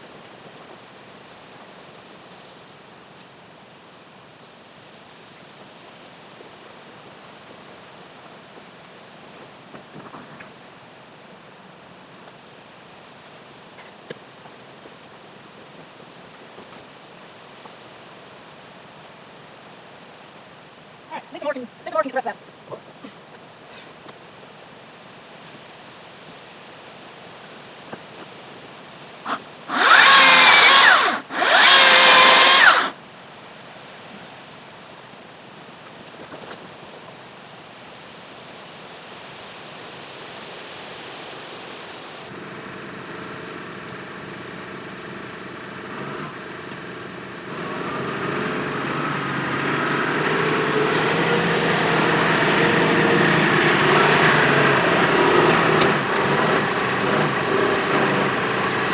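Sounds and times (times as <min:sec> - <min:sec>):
engine running: 0:29.3 - 0:32.9, 0:42.3 - 0:58.9
chainsaw revving: 0:29.3 - 0:33.0, 0:42.3 - 0:58.9.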